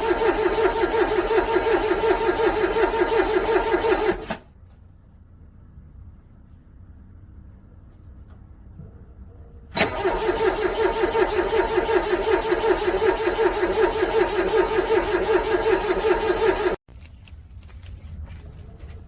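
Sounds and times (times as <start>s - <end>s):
car engine cranking: 0.0s - 4.4s, 9.7s - 16.8s.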